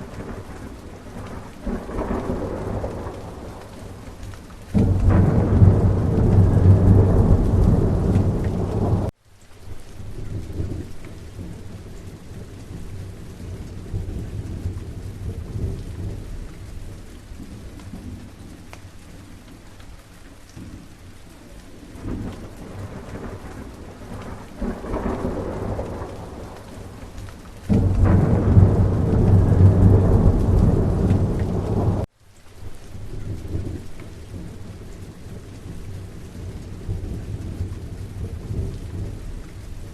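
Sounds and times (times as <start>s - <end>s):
rolling thunder: 0.0s - 9.1s, 21.8s - 32.1s, 33.0s - 39.9s
steady rain: 0.0s - 39.9s.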